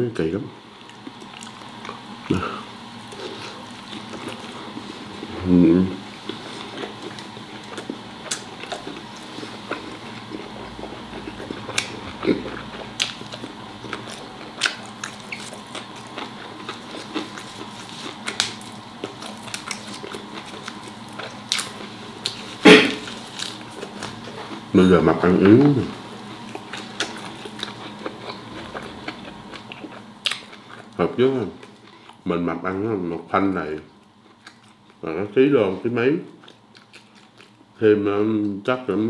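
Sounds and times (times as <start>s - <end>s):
biting and chewing: 6.2s - 32.2s, 36.3s - 37.7s.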